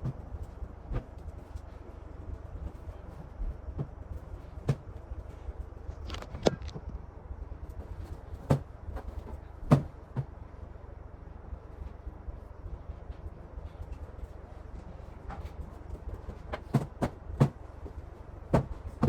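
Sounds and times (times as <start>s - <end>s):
steady low hum: 0.0s - 19.0s
objects knocking and clicking: 5.9s - 6.9s.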